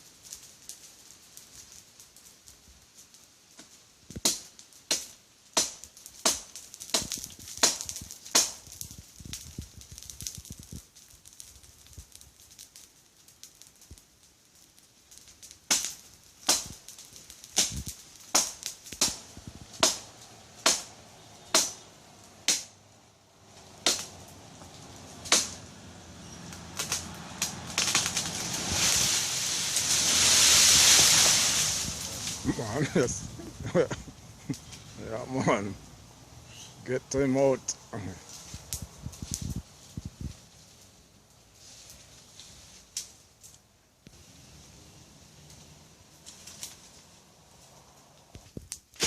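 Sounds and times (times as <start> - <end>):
machete chopping into tree: 4.2 - 8.6, 25.3 - 25.6.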